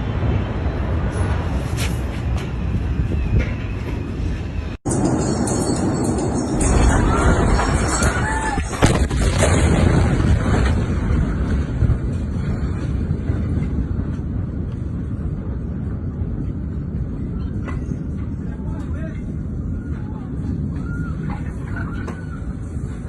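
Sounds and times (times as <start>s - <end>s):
massive explosion roar: 6.5s - 14.6s.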